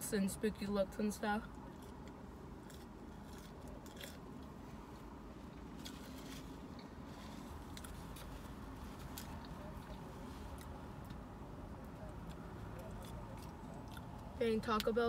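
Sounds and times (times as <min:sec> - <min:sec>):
steady low hum: 0:00.0 - 0:15.0
quiet chewing of fries: 0:01.4 - 0:14.9.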